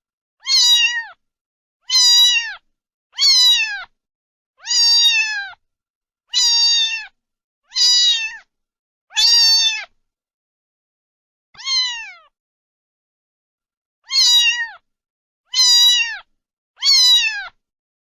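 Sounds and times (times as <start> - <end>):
cat meowing: 0.4 - 1.2, 1.8 - 4.0, 4.6 - 5.6, 6.3 - 8.5, 9.1 - 10.0, 11.6 - 12.4, 14.0 - 14.8, 15.5 - 17.6.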